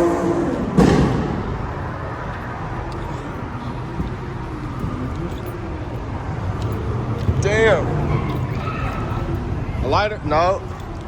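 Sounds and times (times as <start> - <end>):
distant voices: 0.0 - 11.0
vehicle engines running: 0.0 - 11.0
loud thump: 0.6 - 1.7.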